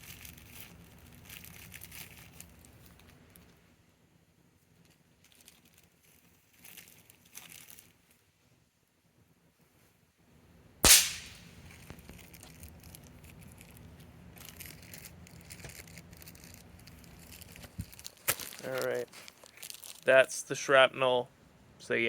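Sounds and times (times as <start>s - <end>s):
firework snapper crack: 10.8s - 12.2s.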